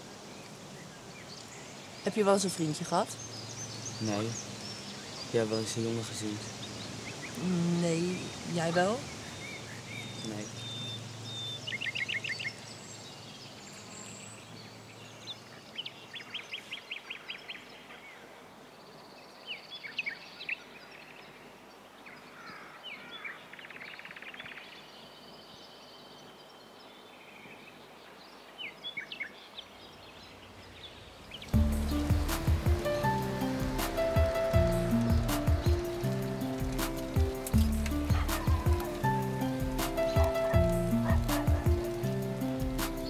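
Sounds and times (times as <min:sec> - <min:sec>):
background hiss: 0:00.0 - 0:43.0
birds singing: 0:00.0 - 0:43.0
loud music: 0:31.6 - 0:43.0.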